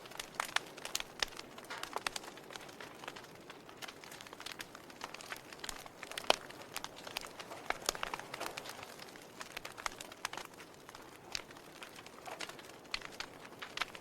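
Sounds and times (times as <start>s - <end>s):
logs crackling in fireplace: 0.0s - 14.0s.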